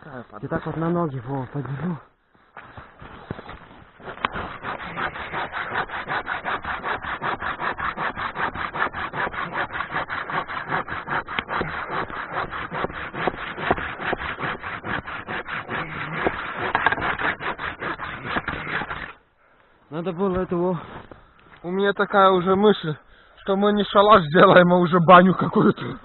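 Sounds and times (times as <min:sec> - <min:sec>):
hand saw cutting branch: 0:02.6 - 0:19.2.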